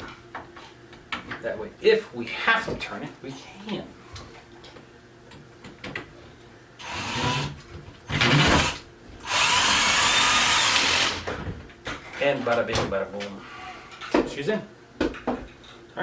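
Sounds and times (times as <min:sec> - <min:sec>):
cordless drill running: 0:06.8 - 0:07.5, 0:08.3 - 0:11.3.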